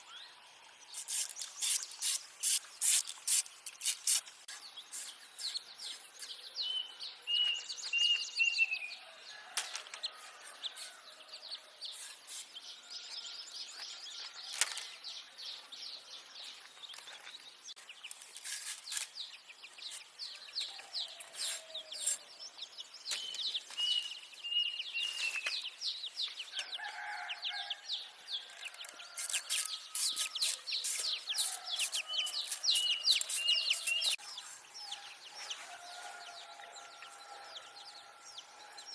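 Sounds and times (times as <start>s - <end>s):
small scrapes and rustles: 18.0s - 20.1s.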